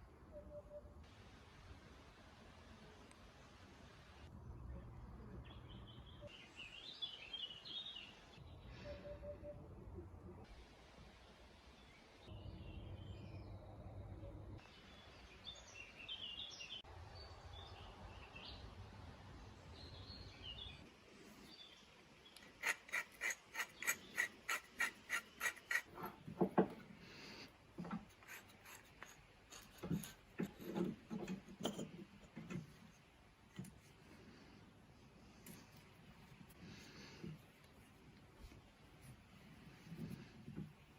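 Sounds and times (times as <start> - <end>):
metal tool knocking and scraping: 22.4 - 34.0
hand scraping strokes: 22.4 - 40.9.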